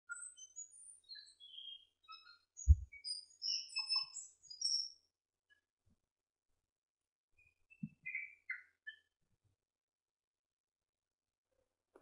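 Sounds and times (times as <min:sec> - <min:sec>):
small birds chirping: 0:00.1 - 0:05.7, 0:07.4 - 0:09.2.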